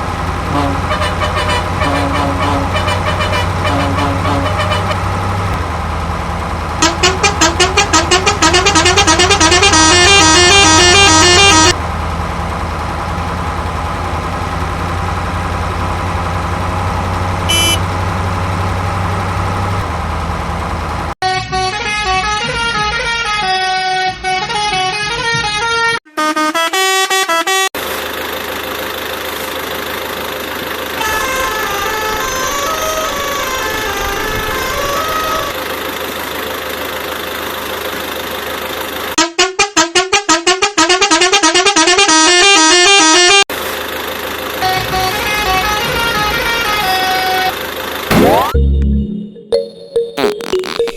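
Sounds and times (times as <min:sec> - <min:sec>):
engine-like drone: 0:00.0 - 0:21.2, 0:27.8 - 0:39.2, 0:41.1 - 0:49.3
warbling horn: 0:00.3 - 0:05.6, 0:06.8 - 0:11.8, 0:17.4 - 0:17.8, 0:31.0 - 0:35.6, 0:39.2 - 0:43.4, 0:44.6 - 0:49.2
short beep: 0:17.5 - 0:17.8
electronic jingle: 0:48.1 - 0:50.9.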